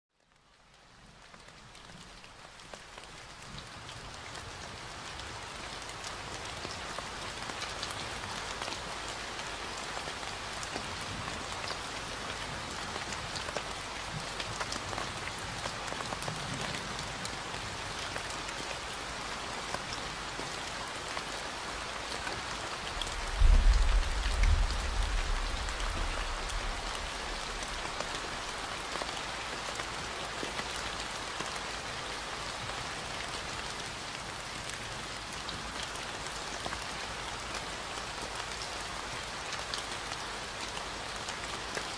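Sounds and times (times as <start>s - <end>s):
steady rain: 0.1s - 41.9s
deep rumble: 23.1s - 26.5s.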